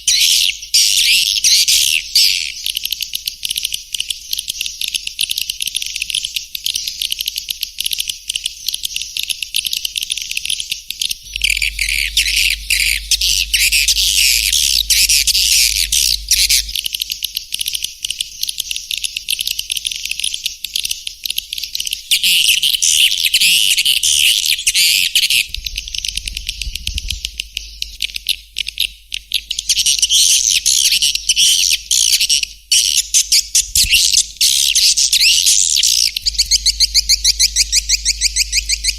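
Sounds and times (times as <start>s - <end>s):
swiftlets twittering: 11.3s - 17.0s, 33.4s - 38.9s.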